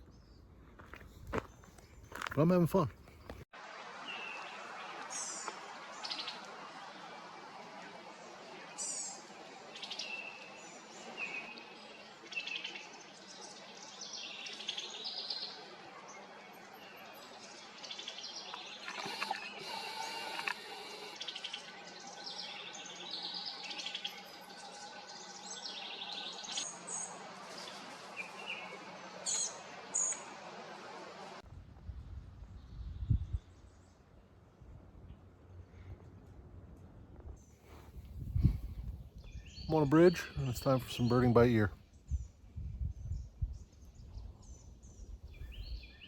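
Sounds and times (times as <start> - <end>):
songbirds singing and calling: 8.1 - 30.3, 37.9 - 46.0.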